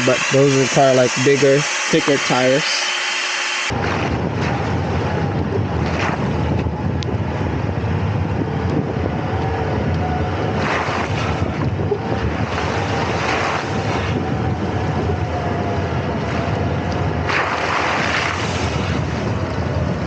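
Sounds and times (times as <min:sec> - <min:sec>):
steady low rumble: 0:03.6 - 0:20.0
wind buffeting microphone: 0:03.7 - 0:20.0.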